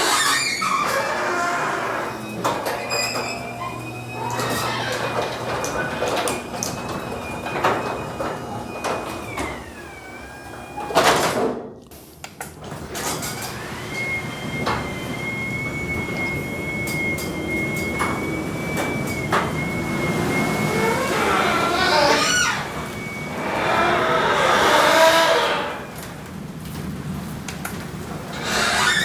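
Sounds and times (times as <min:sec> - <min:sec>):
garage door opener whine: 0:00.0 - 0:11.6, 0:12.6 - 0:29.0
rollers clicking in track: 0:12.5 - 0:29.0
garage door clunk: 0:12.7 - 0:26.8.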